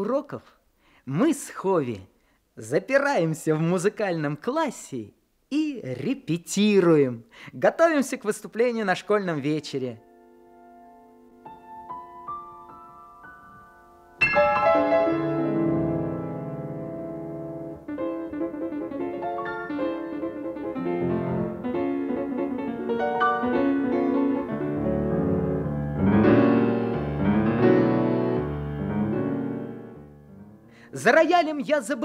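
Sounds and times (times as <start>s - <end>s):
piano playing lively tune: 11.4s - 30.7s.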